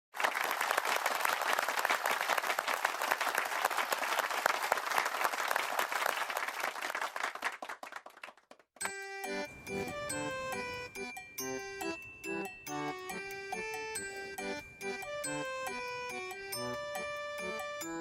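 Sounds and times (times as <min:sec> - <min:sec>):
crowd applauding: 0:00.1 - 0:08.8.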